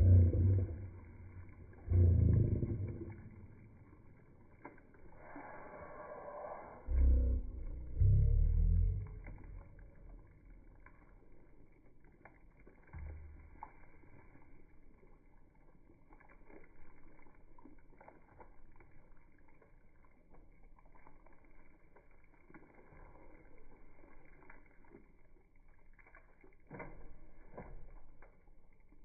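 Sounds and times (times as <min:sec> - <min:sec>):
soft liquid pops and swishes: 0:02.7 - 0:05.4, 0:09.0 - 0:29.0.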